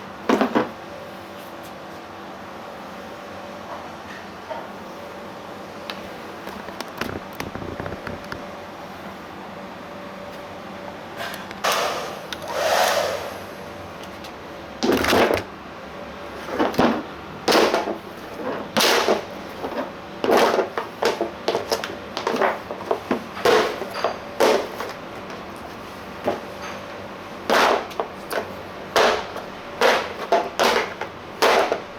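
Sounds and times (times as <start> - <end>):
steady hum: 5.4 - 9.0
plastic bumper knocks and clatters: 6.5 - 8.5.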